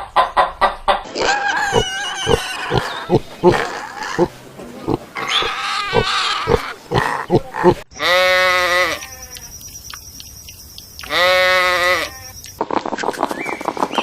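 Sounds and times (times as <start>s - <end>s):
long bleats: 4.9s - 9.5s, 11.1s - 12.4s.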